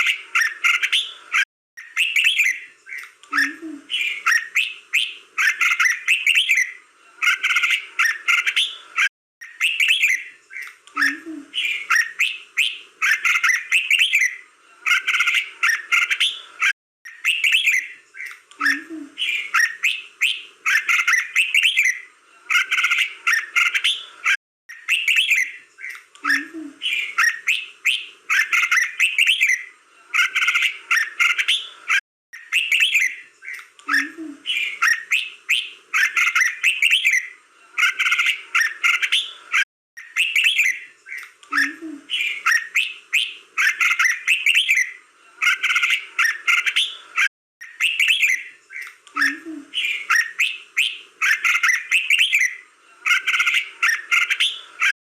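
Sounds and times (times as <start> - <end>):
bird singing whistled phrases: 1.8 - 6.8, 9.4 - 14.4, 17.1 - 22.1, 24.7 - 29.7, 32.4 - 37.4, 40.0 - 45.0, 47.6 - 52.6.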